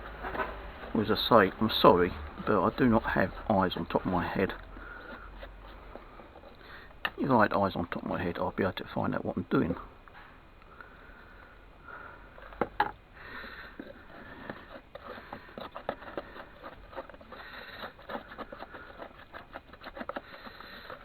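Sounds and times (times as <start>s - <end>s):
wet mixture patted and scraped: 0.1s - 8.4s, 13.4s - 21.0s.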